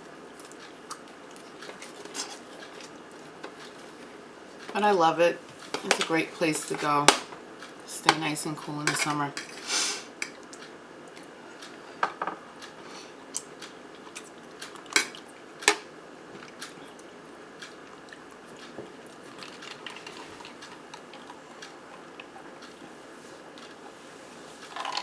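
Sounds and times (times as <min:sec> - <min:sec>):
soft chewing: 0:00.3 - 0:04.7, 0:10.2 - 0:11.8, 0:12.6 - 0:15.5, 0:16.3 - 0:24.2.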